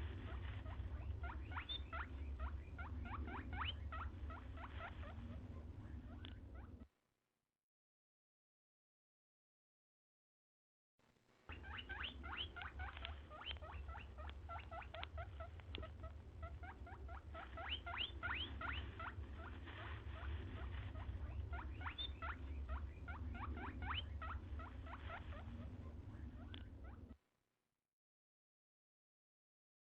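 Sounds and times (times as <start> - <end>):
low hum: 0.0 - 6.9, 11.3 - 27.2
small animal squeaky chirps: 0.2 - 6.8, 11.5 - 27.2.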